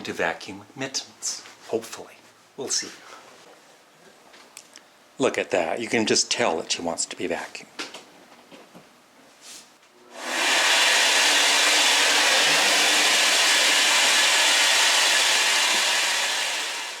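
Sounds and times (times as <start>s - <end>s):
vacuum cleaner running: 10.1s - 17.0s.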